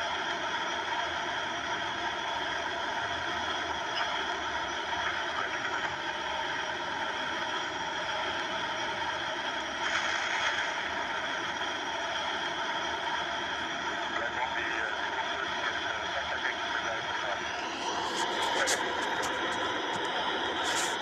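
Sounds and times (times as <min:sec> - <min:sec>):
constant whining tones: 0:00.0 - 0:21.0
jet engines and rushing air: 0:09.7 - 0:21.0.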